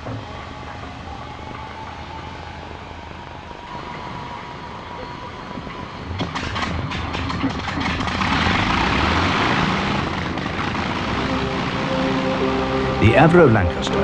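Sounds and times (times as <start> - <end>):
bomber piston engines roaring: 0.0 - 14.0
engine pops and crackles: 6.2 - 11.2.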